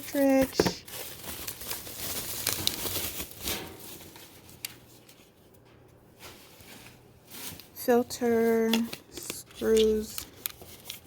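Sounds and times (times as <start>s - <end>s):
packaging rustling: 0.0s - 11.0s.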